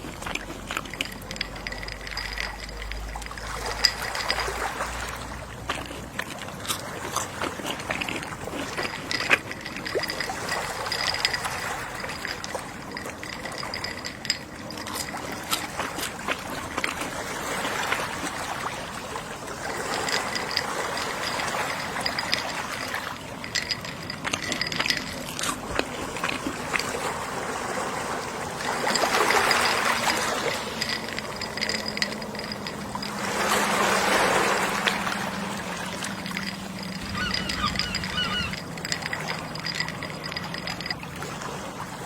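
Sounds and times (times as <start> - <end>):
small clicks and crackles: 0.0 - 4.6
gentle sea waves: 0.0 - 42.0.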